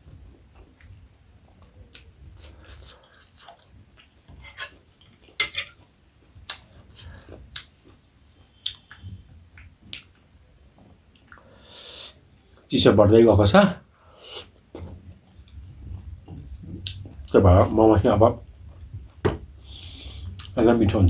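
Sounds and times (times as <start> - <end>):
close chewing with mouth smacks: 0.5 - 4.2, 6.4 - 10.3, 11.1 - 11.5.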